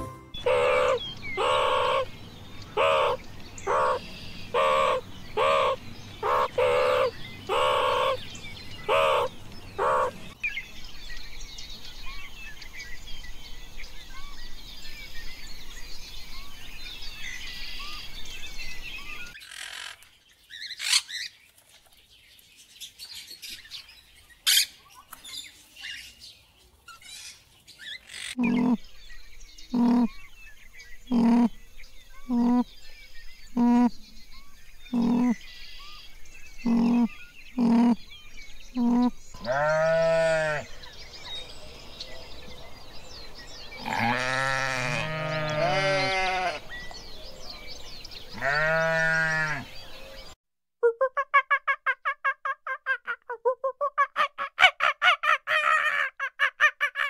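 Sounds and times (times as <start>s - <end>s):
loud repeating bird call: 0.3s - 2.1s, 2.7s - 8.2s, 8.8s - 10.3s, 34.9s - 35.4s.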